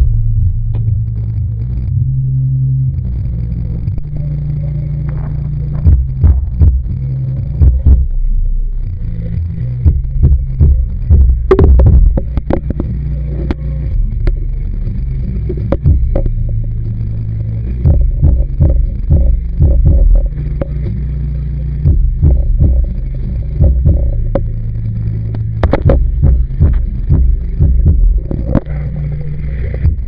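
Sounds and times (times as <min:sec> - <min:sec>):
muffled underwater hum: 0:00.0 - 0:30.0
underwater knocks and clicks: 0:11.2 - 0:12.9, 0:25.6 - 0:28.7.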